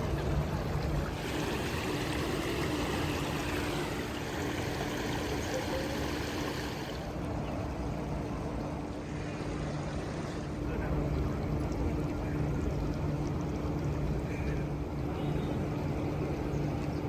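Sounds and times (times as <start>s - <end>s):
water washing: 0.0s - 7.3s
boat engine humming: 0.0s - 8.9s.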